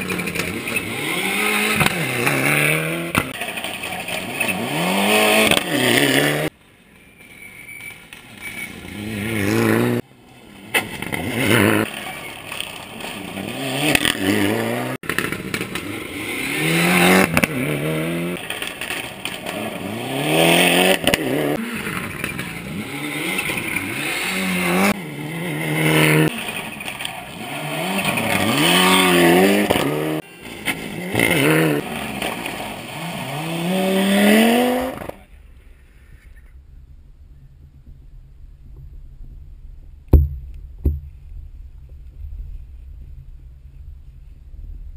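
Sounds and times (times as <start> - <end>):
rally car engine revving: 0.0 - 6.5, 8.4 - 10.0, 10.6 - 35.3.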